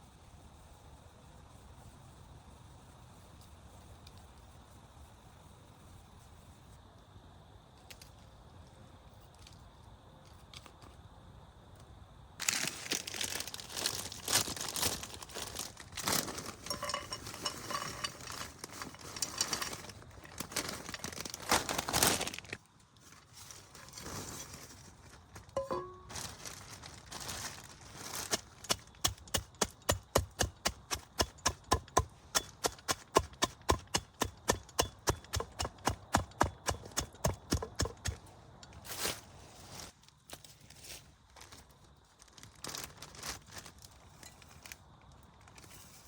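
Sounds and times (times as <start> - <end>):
crinkling handling noise: 12.4 - 46.0
sharp chopping knocks: 28.7 - 38.2.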